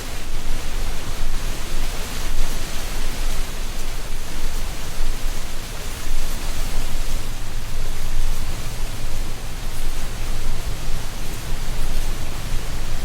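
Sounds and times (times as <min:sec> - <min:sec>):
leaves rustling: 0:00.0 - 0:13.0
wind blowing through trees: 0:00.0 - 0:13.0
deep rumble: 0:07.2 - 0:13.0.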